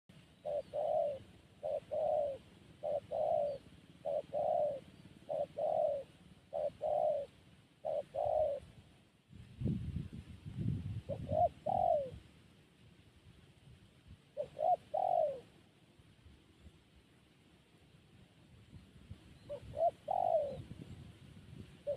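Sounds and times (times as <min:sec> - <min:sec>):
dove cooing: 0:00.1 - 0:08.9, 0:11.0 - 0:12.3, 0:14.3 - 0:15.7, 0:19.4 - 0:21.0.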